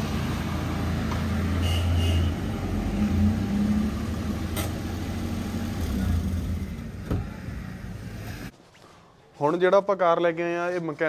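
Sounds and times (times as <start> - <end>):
road noise: 0.0 - 8.5.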